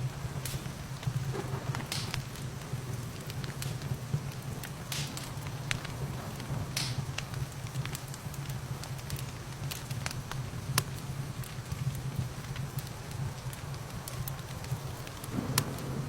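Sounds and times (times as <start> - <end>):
rain hissing: 0.0 - 16.0
wood fire crackling and popping: 0.0 - 16.0
low even rumble: 15.2 - 16.0.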